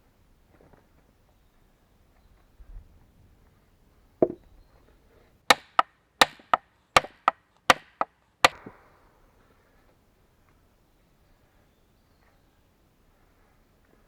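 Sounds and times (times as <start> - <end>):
axe chopping wood: 5.5 - 8.7.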